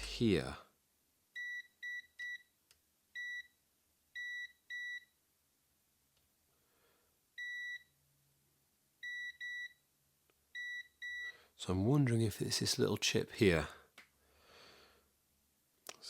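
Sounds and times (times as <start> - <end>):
multimeter continuity beeps: 9.0 - 9.8, 10.6 - 11.4.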